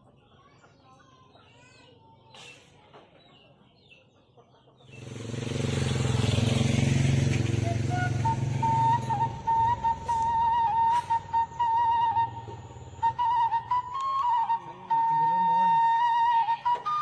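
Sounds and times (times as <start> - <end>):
motorcycle engine running: 4.9 - 9.7
bamboo flute note: 7.6 - 17.0.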